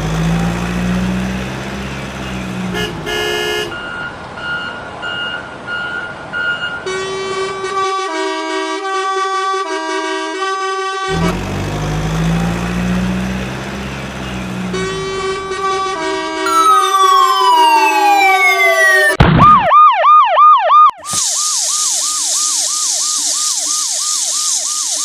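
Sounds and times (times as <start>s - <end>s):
truck horn tune: 0.0s - 4.8s, 6.8s - 19.1s
truck engine revving: 0.0s - 4.9s, 11.1s - 19.1s
short beeps: 14.8s - 19.2s.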